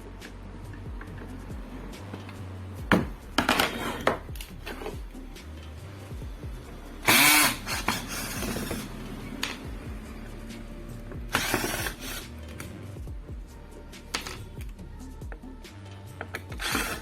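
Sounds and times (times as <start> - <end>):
background music: 0.0 - 17.0
screwdriver forcing screws: 7.0 - 9.6, 11.3 - 12.6, 16.4 - 17.0.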